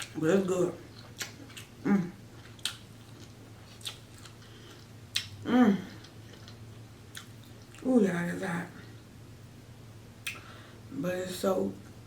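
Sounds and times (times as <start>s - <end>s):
wet mouth clicks and biting: 2.5s - 4.4s
person humming: 5.4s - 6.0s.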